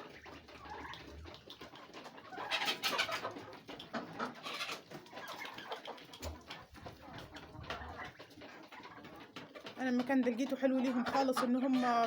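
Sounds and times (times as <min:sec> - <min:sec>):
poultry calling: 0:02.2 - 0:06.0.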